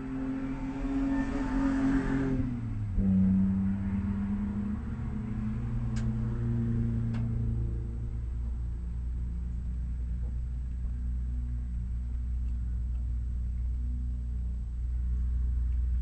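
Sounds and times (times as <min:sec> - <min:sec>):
car engine idling: 0:03.8 - 0:16.0.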